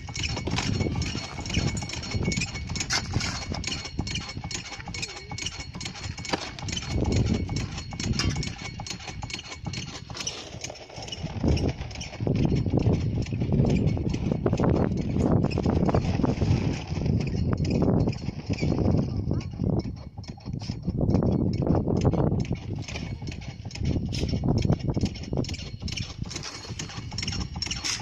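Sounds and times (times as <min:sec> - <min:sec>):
rocks and gravel clattering: 0:00.0 - 0:04.2, 0:25.5 - 0:28.0.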